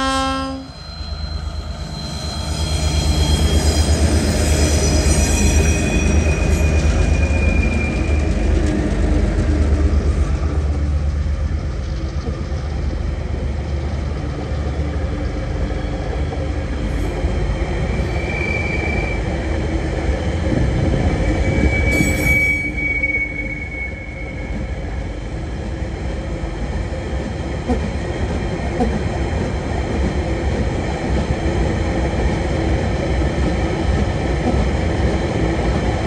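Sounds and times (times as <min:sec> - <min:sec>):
high-pitched wheel squeals: 0:00.2 - 0:08.5, 0:16.9 - 0:19.4, 0:20.9 - 0:24.9
wagon wheels rumbling on rail: 0:01.6 - 0:36.0.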